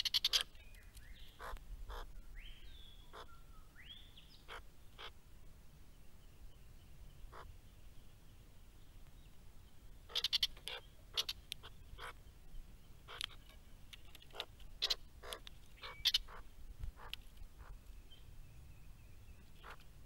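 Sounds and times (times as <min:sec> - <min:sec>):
short sharp bird calls: 0:00.0 - 0:05.2, 0:07.2 - 0:07.6, 0:10.1 - 0:12.2, 0:14.3 - 0:17.8.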